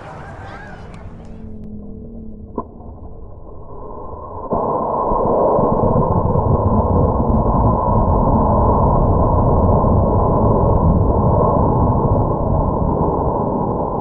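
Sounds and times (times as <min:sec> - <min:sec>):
wind buffeting microphone: 0:00.0 - 0:01.6.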